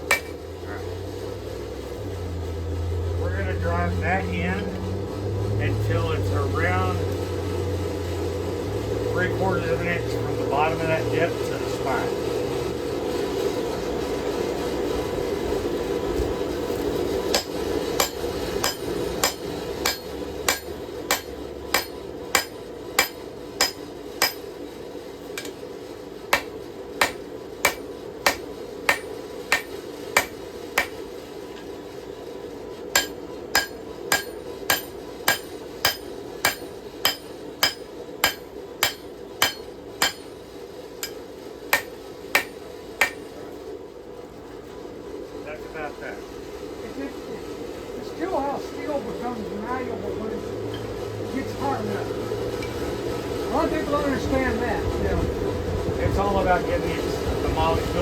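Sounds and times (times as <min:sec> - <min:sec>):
hammer striking steel on anvil: 0:00.0 - 0:00.4, 0:17.3 - 0:24.6, 0:25.3 - 0:25.6, 0:26.3 - 0:31.7, 0:32.9 - 0:40.4, 0:41.0 - 0:43.5.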